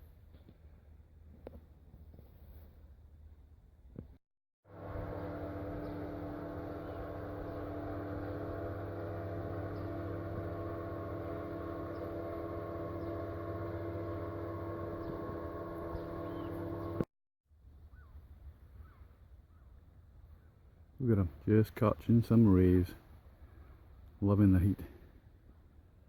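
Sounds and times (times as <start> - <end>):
steady engine drone: 4.7 - 17.1.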